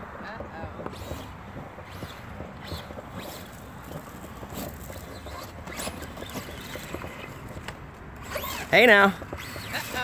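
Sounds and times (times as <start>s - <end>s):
electric motor whirring: 0.8s - 10.0s
tyres spinning in mud: 1.8s - 10.0s.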